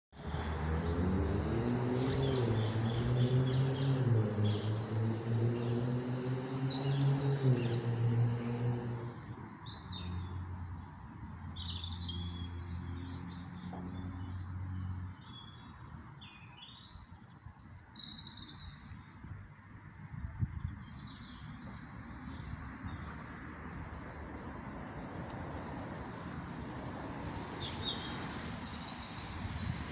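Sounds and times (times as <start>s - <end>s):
small birds chirping: 27.6s - 29.9s.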